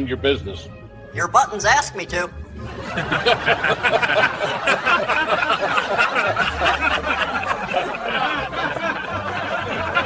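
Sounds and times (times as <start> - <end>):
people laughing: 2.6 - 10.0.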